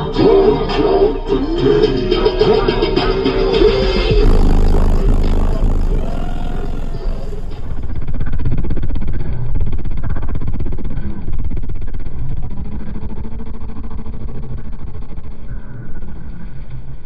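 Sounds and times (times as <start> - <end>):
loud car stereo music: 1.6 - 7.9.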